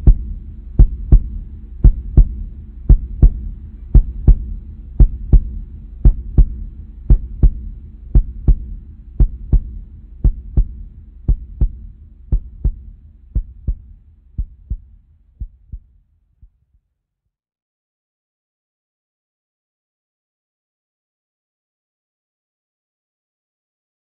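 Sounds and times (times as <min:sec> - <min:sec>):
low hum: 0:00.0 - 0:15.8
heartbeat thumps: 0:00.0 - 0:15.9.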